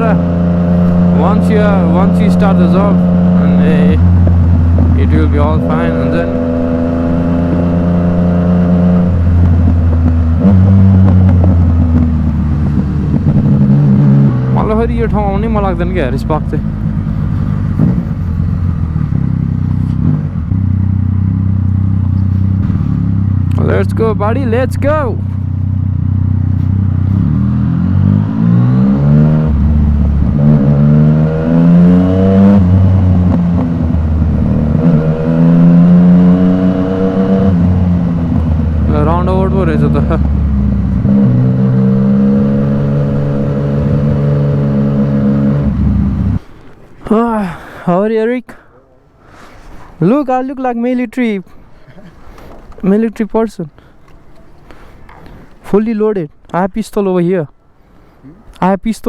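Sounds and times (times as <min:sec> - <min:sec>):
motorcycle engine while riding: 0:00.0 - 0:46.4.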